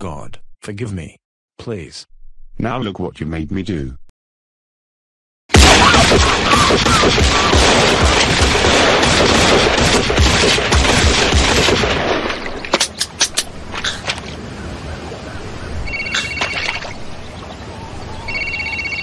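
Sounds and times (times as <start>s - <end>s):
gunfire volley: 5.5s - 12.7s
separate gunshots: 5.5s - 13.0s.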